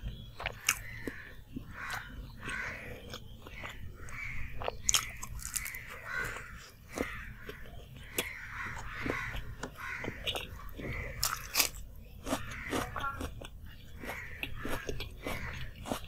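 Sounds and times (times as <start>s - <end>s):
crunching of crisp pastry: 0.0s - 16.0s.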